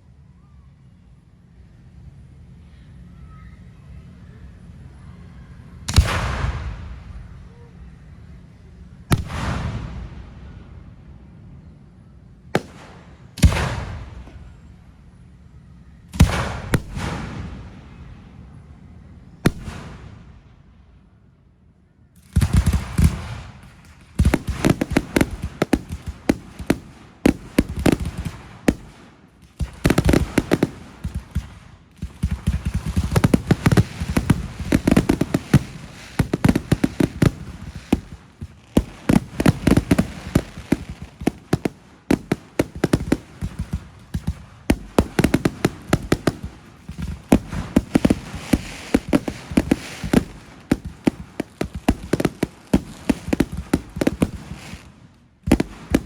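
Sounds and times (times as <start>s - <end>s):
fireworks bangs and crackles: 5.9s - 7.4s, 9.1s - 10.8s, 12.5s - 14.8s, 16.1s - 18.4s, 19.4s - 20.7s, 22.2s - 56.0s
deep booms of shell bursts: 22.4s - 54.6s.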